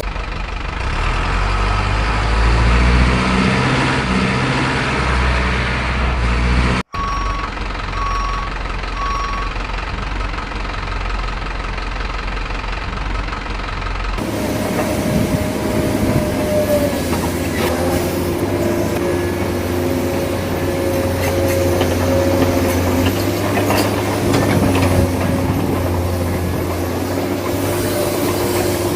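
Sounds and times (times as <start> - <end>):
heavy truck engine running: 0.0 - 28.9
reversing alarm beeps: 6.9 - 9.6.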